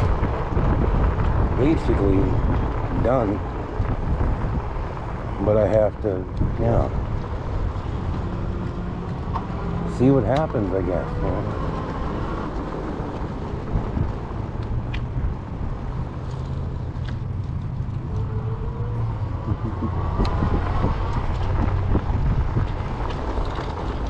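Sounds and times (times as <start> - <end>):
e-bike tires and drivetrain drone: 0.0 - 24.0
rising whine: 17.8 - 22.6.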